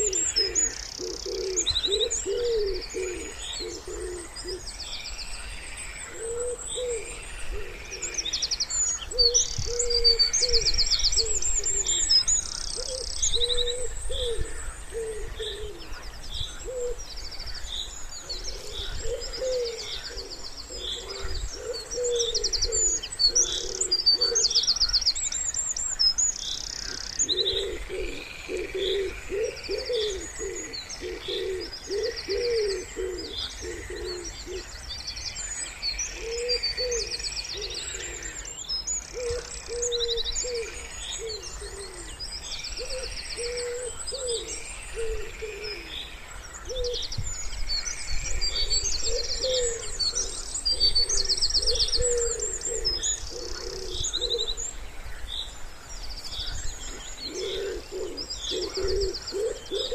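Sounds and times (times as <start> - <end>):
wood pigeons cooing: 0.0 - 4.8, 5.9 - 8.4, 9.0 - 17.1, 18.2 - 24.8, 26.7 - 34.7, 36.1 - 38.5, 39.1 - 47.1, 48.2 - 54.7, 56.2 - 59.9
songbirds trilling and chirping: 0.0 - 59.9.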